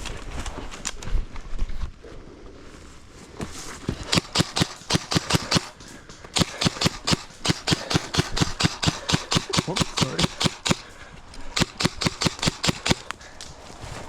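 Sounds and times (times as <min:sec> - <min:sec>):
airsoft gun rapid firing: 0:04.0 - 0:13.4.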